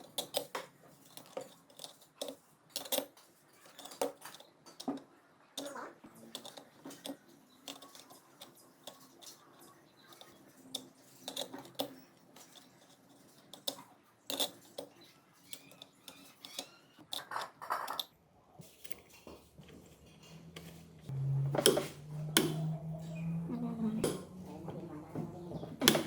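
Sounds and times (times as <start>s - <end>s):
metal tools clicking and clinking: 0.0s - 5.0s, 5.6s - 18.1s.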